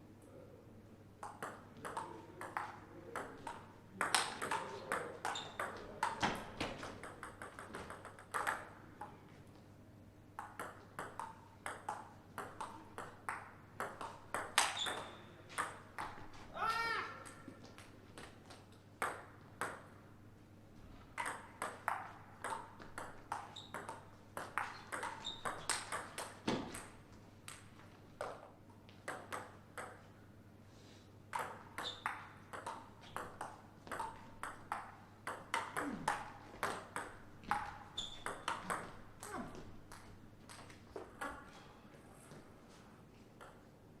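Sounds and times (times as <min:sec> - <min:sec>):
table tennis ball clicking: 0:21.2 - 0:26.9.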